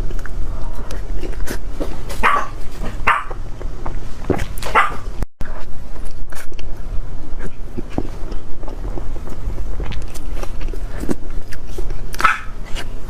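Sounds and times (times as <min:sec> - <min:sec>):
dog barking: 0:02.2 - 0:03.4, 0:04.7 - 0:05.1, 0:12.2 - 0:12.6.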